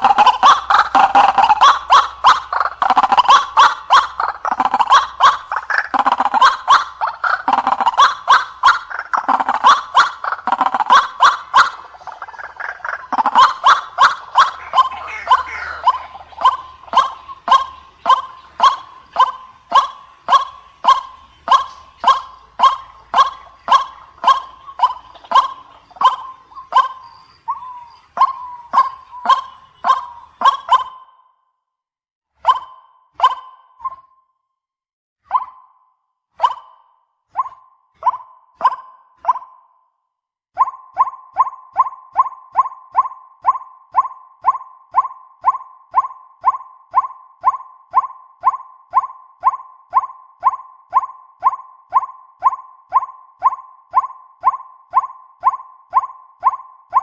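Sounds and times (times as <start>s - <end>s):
waterhen calling harsh notes: 0.0s - 31.1s.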